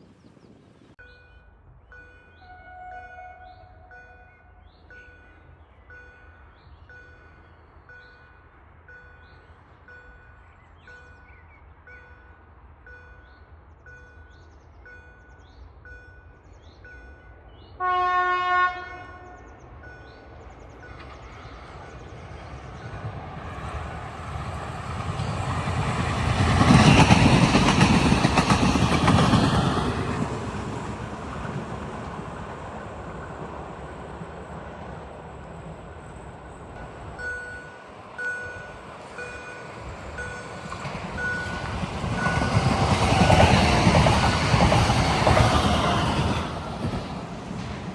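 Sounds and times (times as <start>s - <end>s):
train passing rumble: 0.0s - 47.9s
train horn: 2.4s - 4.7s, 17.8s - 19.5s
level crossing warning bell: 35.9s - 42.8s.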